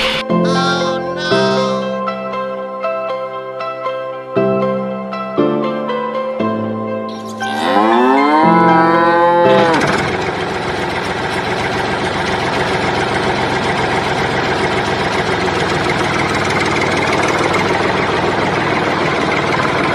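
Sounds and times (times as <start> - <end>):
plucked music notes: 7.1 - 10.1
cow mooing: 7.3 - 10.0
engine idling: 9.5 - 19.9.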